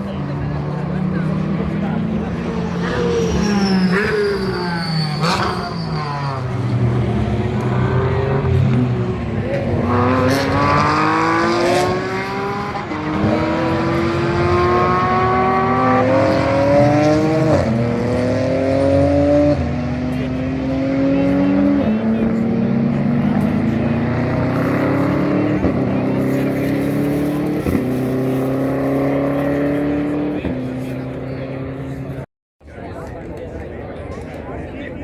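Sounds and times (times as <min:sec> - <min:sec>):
race car engine accelerating: 0:00.0 - 0:32.3.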